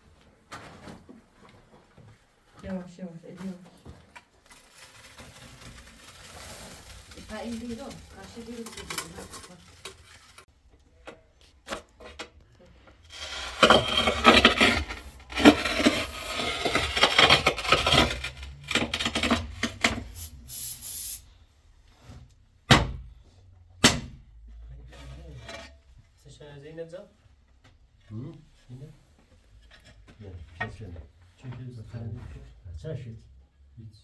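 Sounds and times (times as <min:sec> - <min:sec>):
rough scraping and rubbing: 0:04.5 - 0:10.5, 0:12.9 - 0:21.2.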